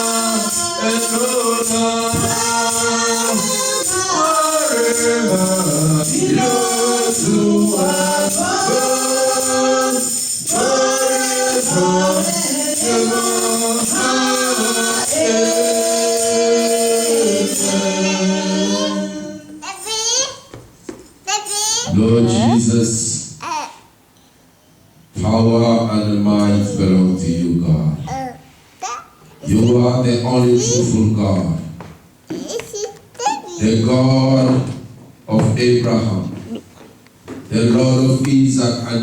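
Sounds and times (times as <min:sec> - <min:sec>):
tambourine: 0:00.0 - 0:17.8
choir singing gospel song: 0:00.0 - 0:19.7, 0:25.2 - 0:27.8, 0:29.4 - 0:31.0.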